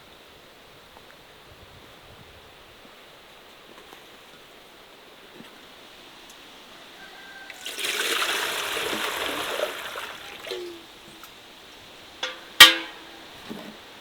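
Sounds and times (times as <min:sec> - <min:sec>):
water pouring and splashing: 0:07.5 - 0:11.5.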